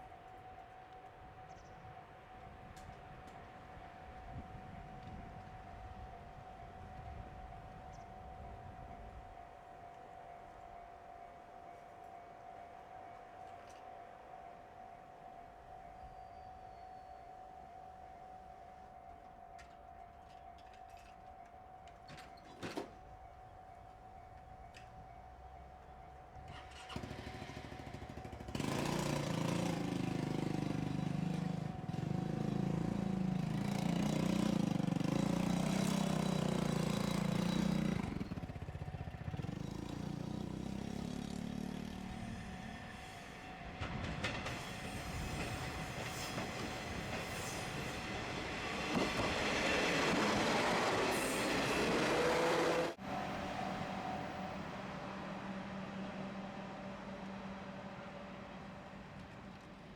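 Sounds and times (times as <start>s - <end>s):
diesel train engine drone: 0.0s - 59.9s
train rushing past: 26.4s - 59.9s.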